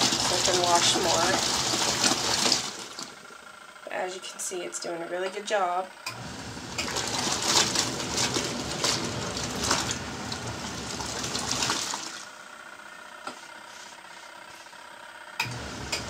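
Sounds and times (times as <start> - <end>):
water sloshing: 0.0 - 3.1, 6.6 - 12.3
washing machine agitating: 0.0 - 3.3, 6.1 - 12.4, 15.4 - 16.0.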